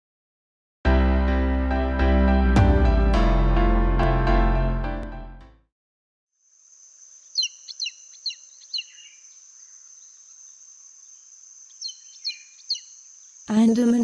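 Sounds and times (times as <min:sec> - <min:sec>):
music: 0:00.8 - 0:05.7
high insect drone: 0:06.4 - 0:13.8.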